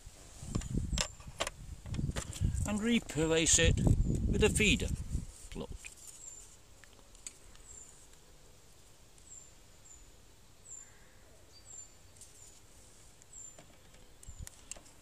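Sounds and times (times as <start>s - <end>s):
small bird chirping: 6.0s - 6.6s, 9.2s - 12.6s.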